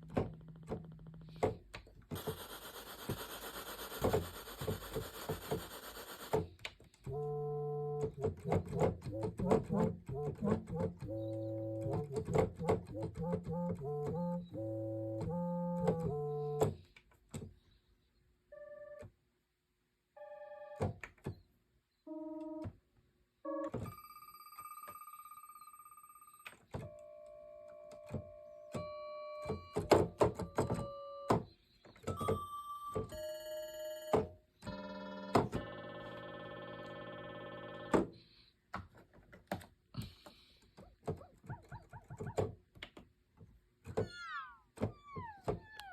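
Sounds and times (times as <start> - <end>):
synthesizer chords: 7.1 - 16.6.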